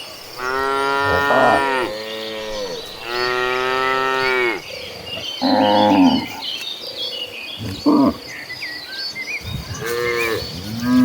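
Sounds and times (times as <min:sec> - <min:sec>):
cattle mooing: 0:00.4 - 0:04.6, 0:05.4 - 0:06.4.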